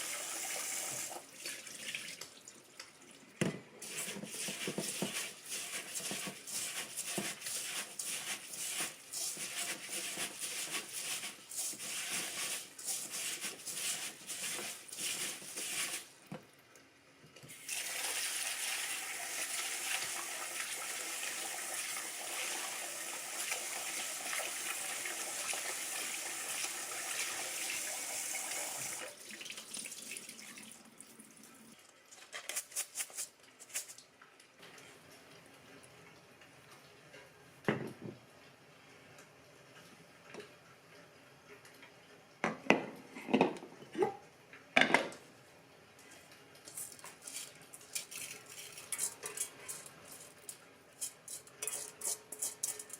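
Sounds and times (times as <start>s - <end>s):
dishes knocking and clattering: 37.7s - 38.2s, 42.4s - 43.8s, 44.8s - 45.2s.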